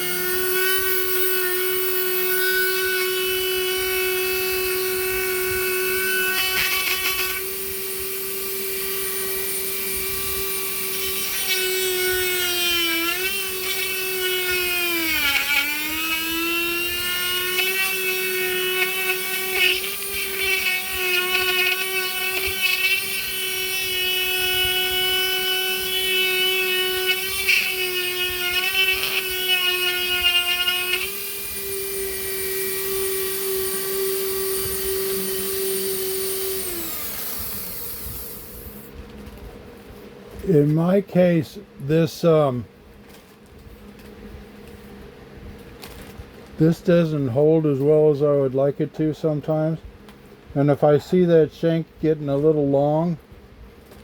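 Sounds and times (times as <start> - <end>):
rotary tool cutting wood: 0.0 - 38.9.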